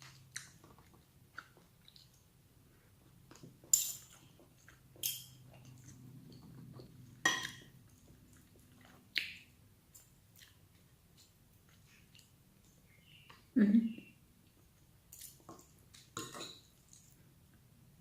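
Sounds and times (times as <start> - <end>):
person chewing: 0.0 - 2.3, 4.1 - 12.8
utensils clinking on a plate: 3.7 - 4.3, 5.0 - 5.4, 7.2 - 7.7, 15.1 - 17.1.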